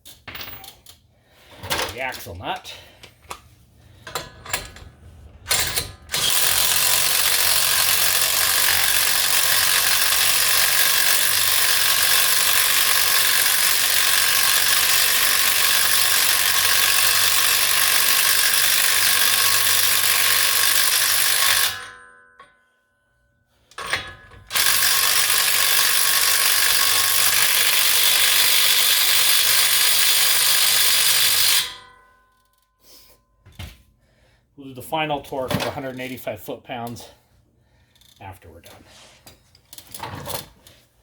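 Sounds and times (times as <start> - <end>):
power tool rattling: 4.0 - 21.7, 23.8 - 31.7.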